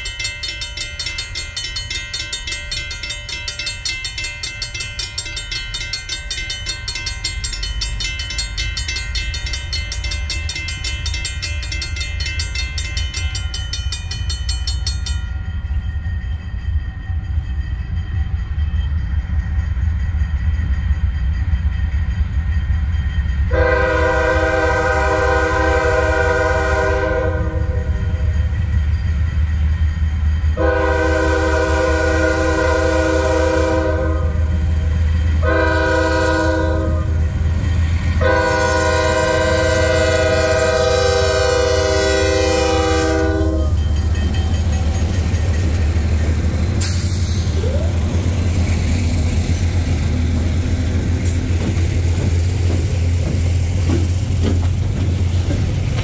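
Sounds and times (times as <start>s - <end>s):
high ringing tones: 0.0s - 23.7s
diesel locomotive engine rumble: 0.0s - 56.0s
train air horn blast: 23.5s - 27.9s, 30.6s - 34.5s, 35.4s - 37.2s, 38.2s - 43.8s.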